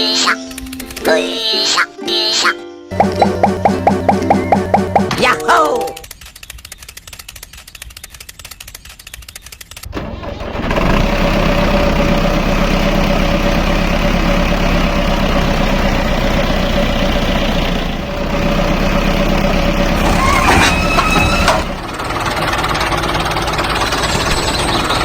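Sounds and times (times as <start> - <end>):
tractor engine running: 2.9 - 5.2, 9.4 - 25.0.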